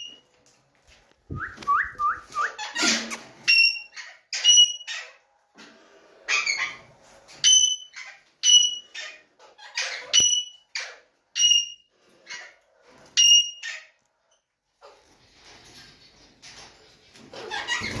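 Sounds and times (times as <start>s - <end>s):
parakeets screeching: 6.3s - 6.9s, 17.3s - 18.0s.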